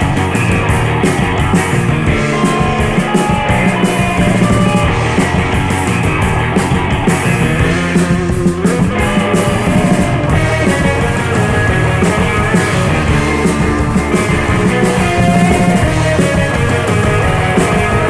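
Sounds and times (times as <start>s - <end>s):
bass guitar: 0.0s - 18.0s
drum kit beat: 0.0s - 18.0s
electric guitar: 0.0s - 18.0s.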